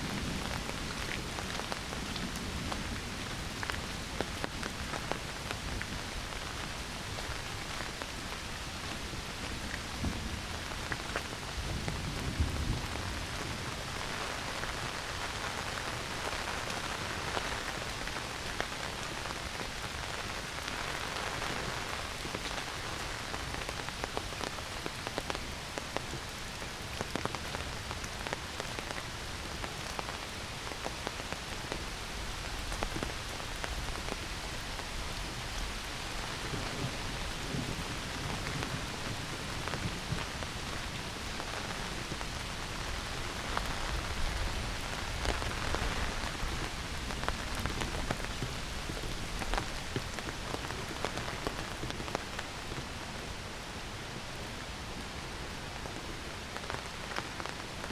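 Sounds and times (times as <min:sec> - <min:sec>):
heavy rain hissing: 0:00.0 - 0:57.9
raindrop taps: 0:45.2 - 0:52.8.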